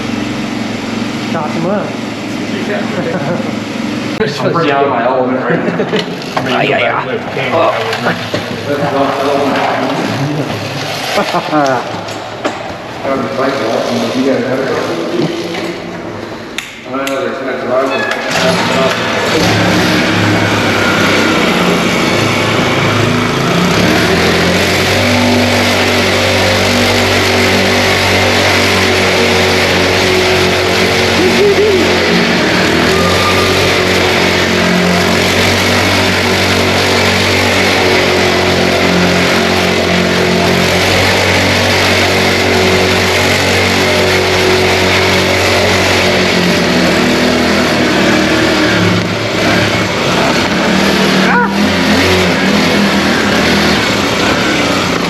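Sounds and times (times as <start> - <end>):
mini bike engine running: 0.0 - 16.5, 17.7 - 55.0.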